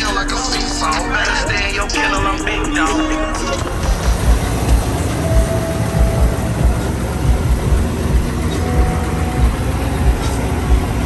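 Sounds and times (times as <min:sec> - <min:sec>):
vehicle rumble from inside cab: 0:00.0 - 0:11.0
regular low thump: 0:03.6 - 0:11.0.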